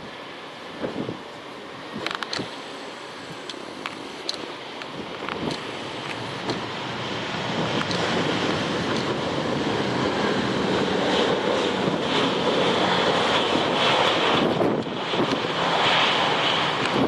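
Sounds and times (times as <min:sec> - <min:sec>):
wind buffeting microphone: 0:00.0 - 0:02.6, 0:04.8 - 0:17.0
jet engine approaching: 0:00.0 - 0:17.0.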